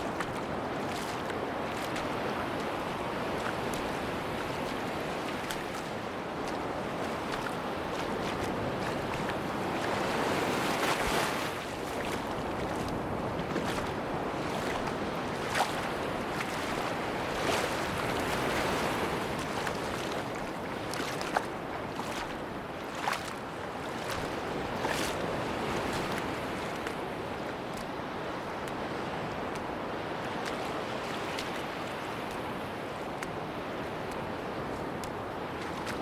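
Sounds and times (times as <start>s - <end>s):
surf washing on a beach: 0.0s - 36.0s.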